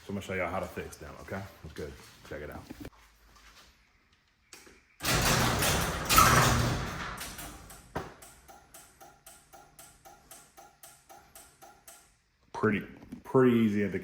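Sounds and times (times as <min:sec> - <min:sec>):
garage door opener clicking: 0:05.0 - 0:12.1.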